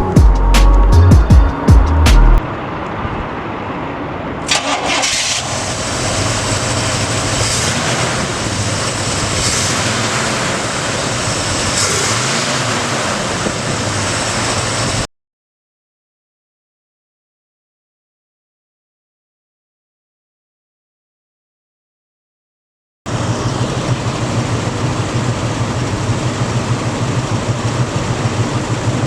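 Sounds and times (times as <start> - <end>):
engine running steadily: 0.0 - 15.0, 23.1 - 29.0
pickup truck engine starting: 4.4 - 15.0, 23.1 - 29.0.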